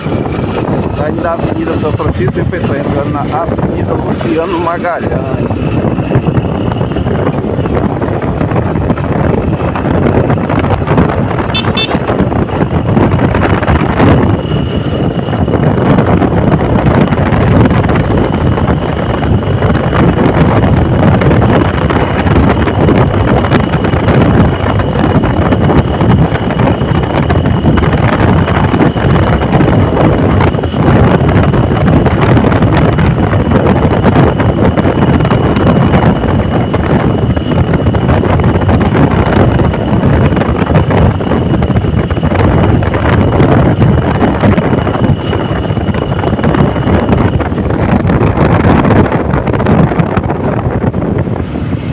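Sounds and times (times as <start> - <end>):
moving vehicle noise: 0.0 - 51.9
wind buffeting microphone: 0.0 - 51.9.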